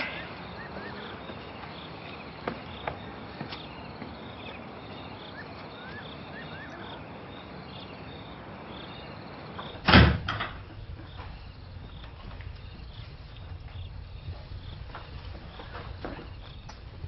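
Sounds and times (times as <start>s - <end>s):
crickets chirping: 0.0s - 17.0s
door slamming shut: 9.8s - 10.7s.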